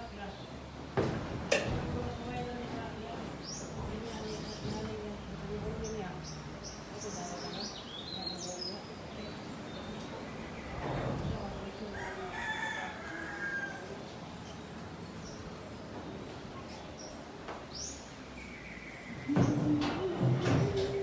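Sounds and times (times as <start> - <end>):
steady background noise: 0.0 - 21.0
rooster crowing: 12.0 - 14.0.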